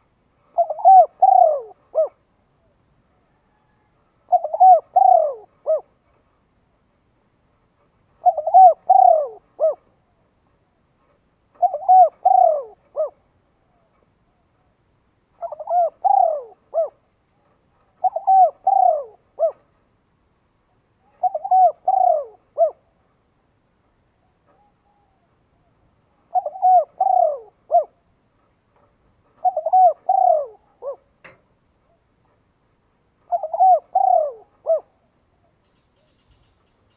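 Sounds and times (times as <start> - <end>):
bird calling: 0.5 - 2.8, 3.4 - 5.9, 8.2 - 10.2, 11.5 - 14.8, 15.4 - 19.7, 21.0 - 23.0, 24.2 - 28.1, 29.3 - 31.1, 33.2 - 36.9.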